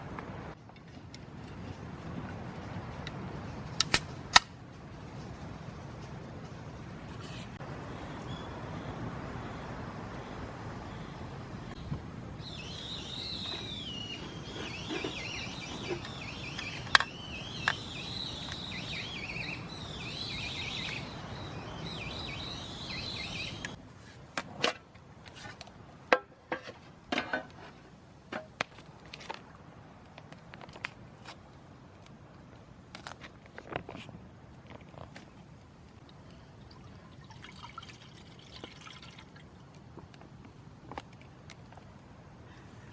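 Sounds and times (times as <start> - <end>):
background hiss: 1.8 - 42.9
bird warbling song: 10.2 - 23.8.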